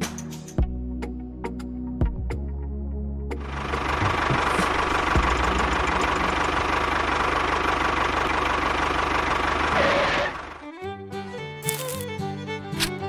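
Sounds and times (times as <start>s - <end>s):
engine rattling chug: 3.4s - 10.9s.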